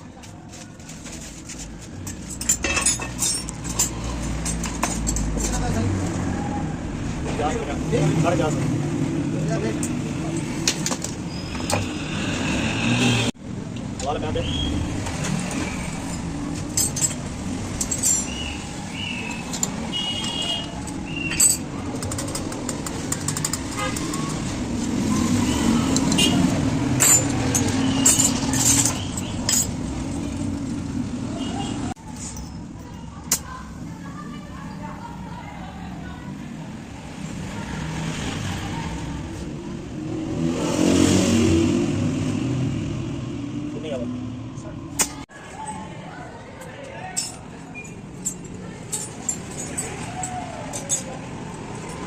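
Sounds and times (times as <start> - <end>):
street traffic hum: 0.0 - 52.0
vehicle engine revving: 11.8 - 13.4, 37.1 - 44.6.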